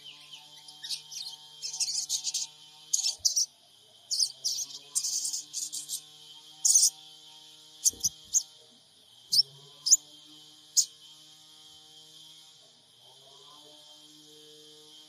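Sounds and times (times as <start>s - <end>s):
bird chirping: 0.0s - 3.5s, 4.1s - 6.0s, 6.6s - 6.9s, 7.8s - 8.5s, 9.3s - 10.0s.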